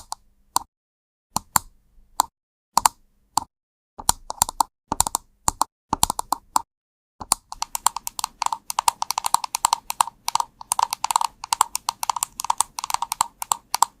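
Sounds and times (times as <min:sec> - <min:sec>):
fast keyboard typing: 0:04.0 - 0:06.6, 0:07.2 - 0:14.0.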